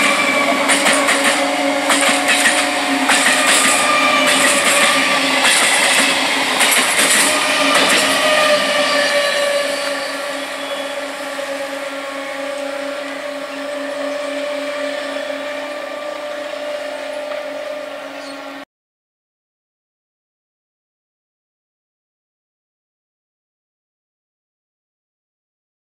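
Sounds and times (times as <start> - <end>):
train wheels clattering over rails: 0.0 - 18.3
distant train hum: 0.0 - 18.6.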